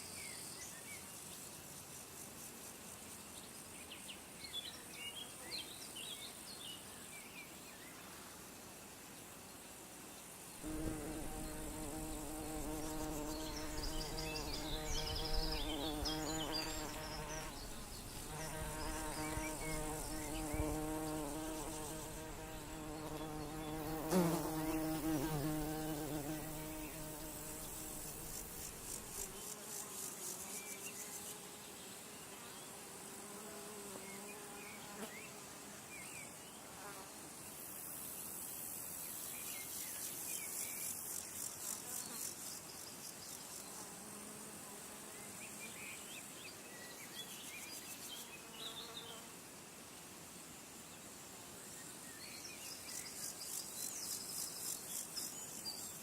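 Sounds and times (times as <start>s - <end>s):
flying insect buzzing: 9.6s - 46.3s, 47.4s - 49.4s
high insect trill: 10.6s - 31.5s.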